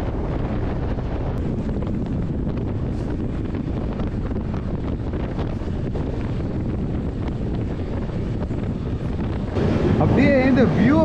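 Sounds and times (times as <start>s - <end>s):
train coaches rumbling on track: 0.0s - 11.0s
wind buffeting microphone: 0.0s - 11.0s.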